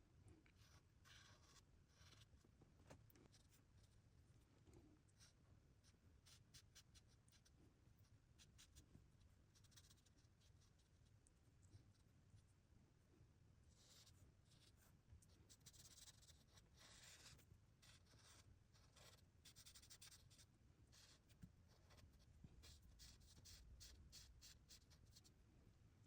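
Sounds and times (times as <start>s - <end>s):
faint scratching or rubbing: 13.6s - 25.4s.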